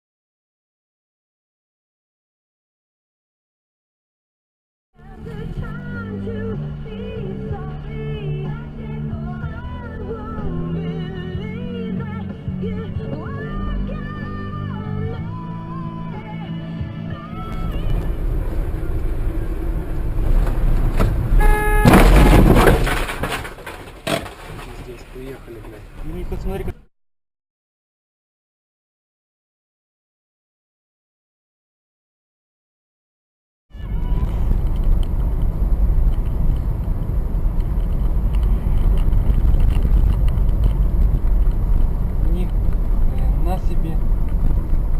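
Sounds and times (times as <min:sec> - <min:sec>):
car engine and road noise: 0:05.0 - 0:26.9, 0:33.7 - 0:44.9
loud collision crash: 0:17.6 - 0:25.0
car horn: 0:21.2 - 0:23.0.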